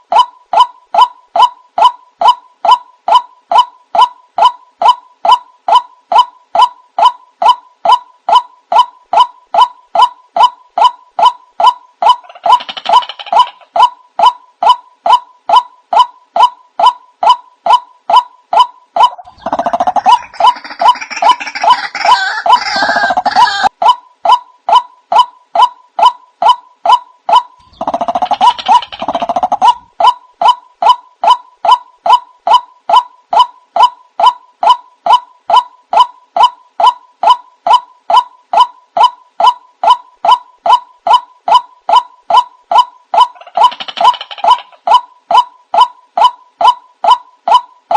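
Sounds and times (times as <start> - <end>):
dense rough bird calling: 19.0 - 23.7
waterhen calling: 19.0 - 23.8.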